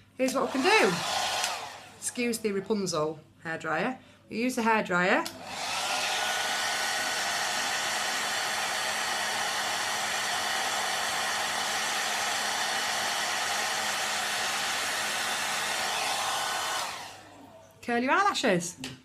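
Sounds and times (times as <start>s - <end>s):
hairdryer blowing: 0.2s - 2.3s, 5.3s - 17.4s.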